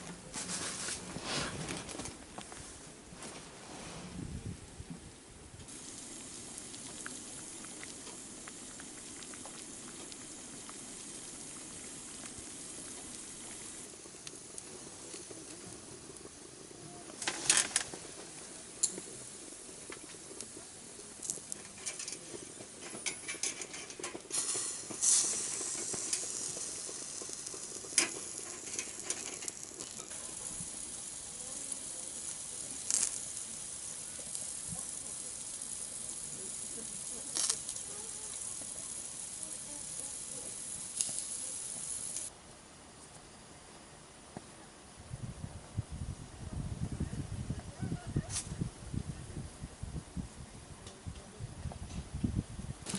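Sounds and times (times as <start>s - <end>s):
fat popping and spitting: 5.7s - 31.1s
food sizzling in a pan: 5.7s - 42.3s.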